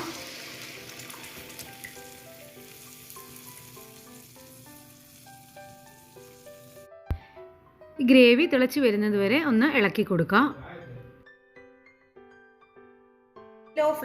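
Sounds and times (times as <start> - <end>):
marinade sizzling in butter: 0.0 - 6.9
soft background music: 0.0 - 14.0.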